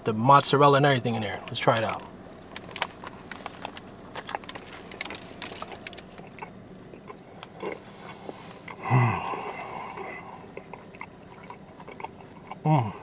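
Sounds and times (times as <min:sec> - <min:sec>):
crust crackling: 0:01.1 - 0:08.8
person biting and chewing bread: 0:02.4 - 0:08.8, 0:09.5 - 0:12.6
wet mouth sounds: 0:05.5 - 0:08.8, 0:10.4 - 0:13.0.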